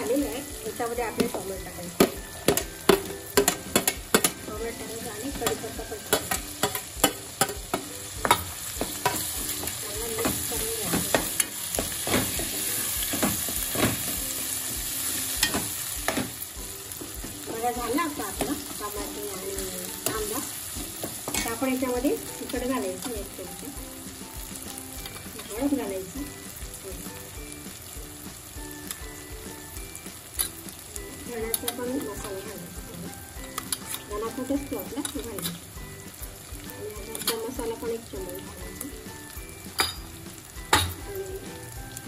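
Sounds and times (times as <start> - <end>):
onion and tomato sizzling in oil: 0.0 - 42.0
steel spatula clacking on pan: 1.1 - 14.2, 15.4 - 16.4, 19.6 - 23.3, 39.7 - 41.0.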